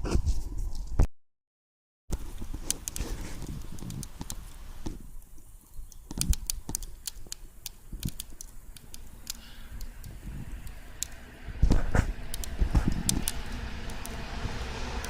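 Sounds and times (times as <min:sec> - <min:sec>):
sharp clicks and crackles: 0:02.1 - 0:14.4
low rumble: 0:09.2 - 0:15.0.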